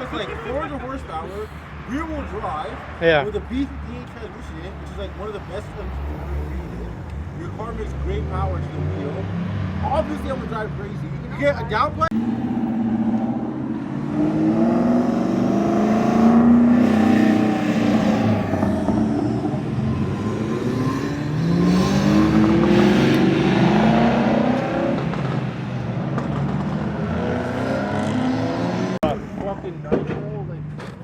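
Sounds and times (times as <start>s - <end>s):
car engine accelerating hard: 5.8s - 29.2s.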